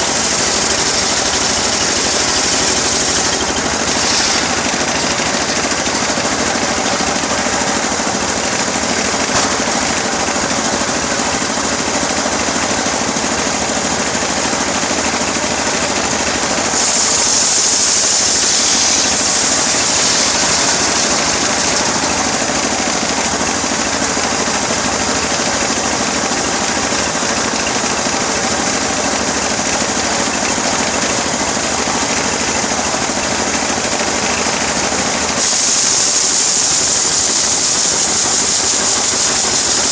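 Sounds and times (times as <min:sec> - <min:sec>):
high hiss of saw cutting: 0:00.0 - 0:11.2, 0:15.8 - 0:25.7, 0:35.3 - 0:39.9
rapid mechanical rattle: 0:00.0 - 0:39.9
sawmill engine running: 0:00.0 - 0:39.9.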